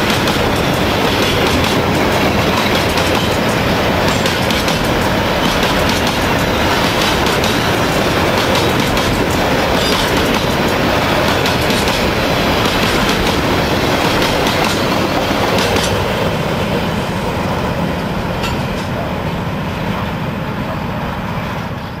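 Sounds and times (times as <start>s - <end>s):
freight wagons rumbling on rails: 0.0s - 22.0s.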